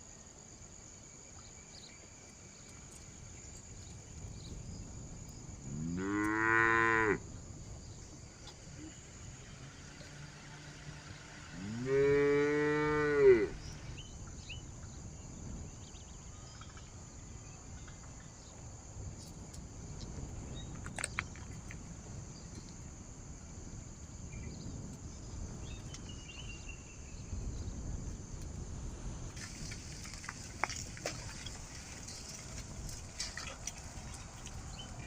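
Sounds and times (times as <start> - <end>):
cow mooing: 5.7 - 7.2, 10.4 - 13.7.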